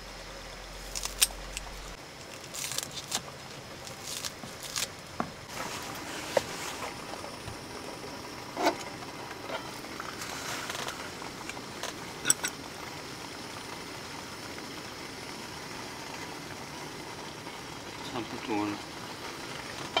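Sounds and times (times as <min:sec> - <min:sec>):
pot steaming with hiss: 0:05.0 - 0:20.0.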